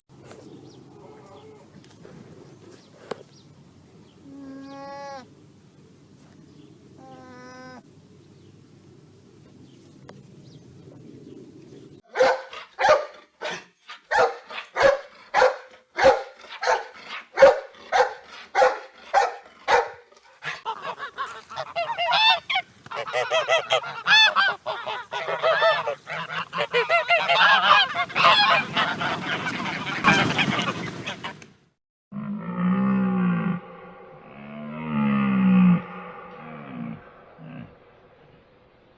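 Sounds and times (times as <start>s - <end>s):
waterfowl calling: 20.4s - 31.6s.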